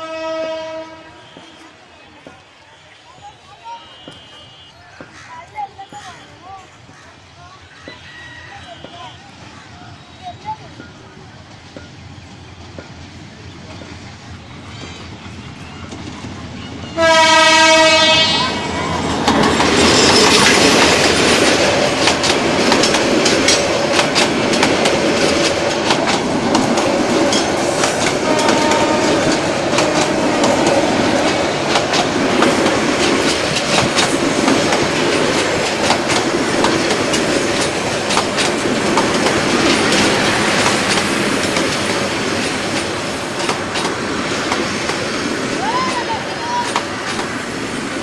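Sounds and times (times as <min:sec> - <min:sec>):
loud train rumble: 0:00.0 - 0:48.0
train wheels clacking over joints: 0:04.0 - 0:18.2, 0:18.9 - 0:48.0.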